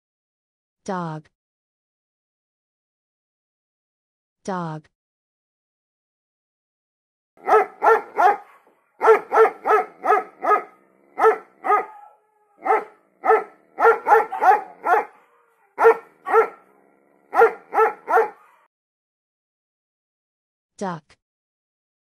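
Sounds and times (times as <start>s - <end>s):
dog barking: 7.4s - 18.7s.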